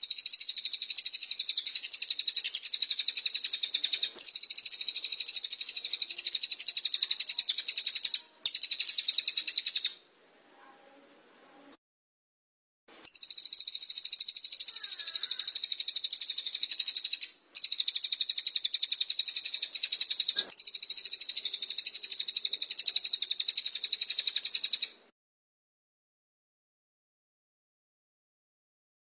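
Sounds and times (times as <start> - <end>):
songbird trilling: 0.0 - 10.0, 13.0 - 25.0.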